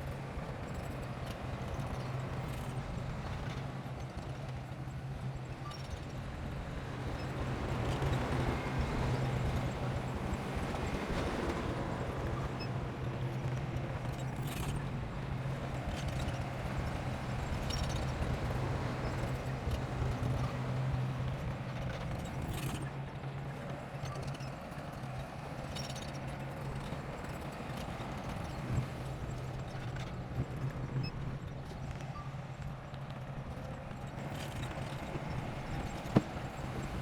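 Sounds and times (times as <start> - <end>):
bulldozer engine running: 34.0 - 37.0.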